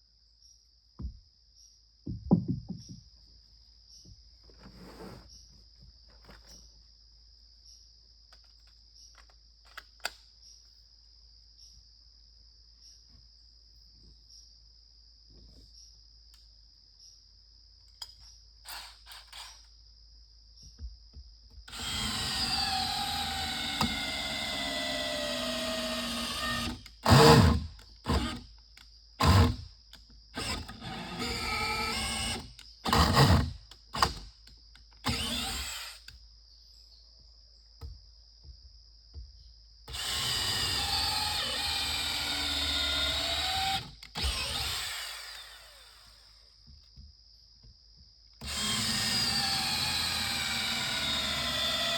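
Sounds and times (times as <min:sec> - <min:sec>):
high insect trill: 0:05.2 - 0:33.2
electric drill into wood: 0:18.7 - 0:19.6, 0:21.7 - 0:28.5, 0:29.2 - 0:29.7, 0:30.3 - 0:34.3, 0:35.0 - 0:36.1, 0:39.9 - 0:46.4, 0:48.4 - 0:51.9.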